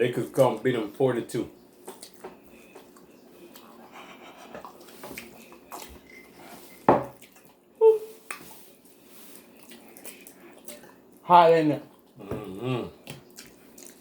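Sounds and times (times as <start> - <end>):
close chewing and mouth noises: 0.2 - 14.0.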